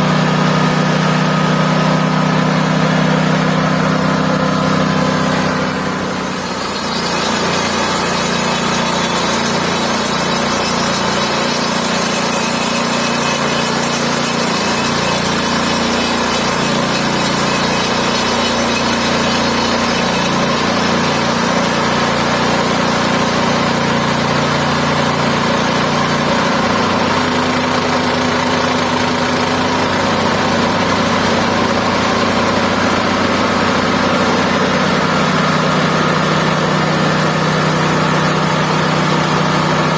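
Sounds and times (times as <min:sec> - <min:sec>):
band sawmill engine drone: 0:00.0 - 0:27.8.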